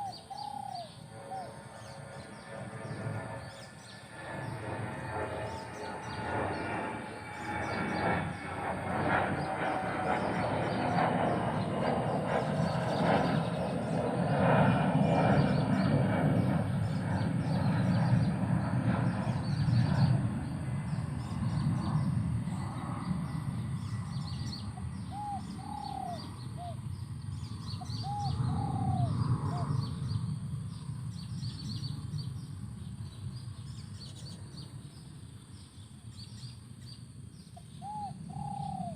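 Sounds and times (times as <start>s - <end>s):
dove cooing: 0.0s - 1.6s, 24.7s - 26.8s, 28.0s - 30.0s, 37.8s - 38.9s
birds chirping: 0.0s - 38.9s.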